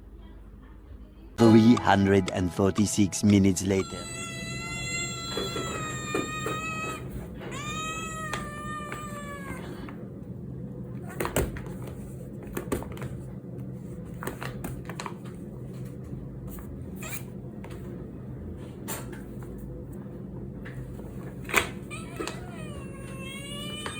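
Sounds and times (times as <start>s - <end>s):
cat yowling: 3.7s - 10.0s, 21.8s - 23.9s.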